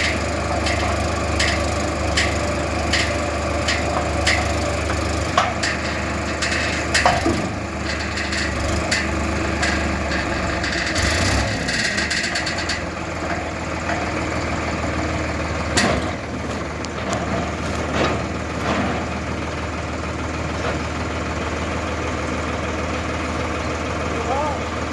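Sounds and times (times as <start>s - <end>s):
brief rattle: 0.0s - 14.2s
sharp metal clanks: 0.0s - 14.3s
tractor diesel engine idling: 0.0s - 24.9s.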